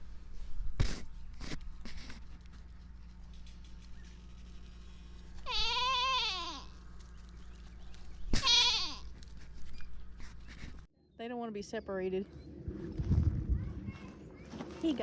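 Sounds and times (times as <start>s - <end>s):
goat bleating: 5.4s - 6.8s, 8.3s - 9.2s.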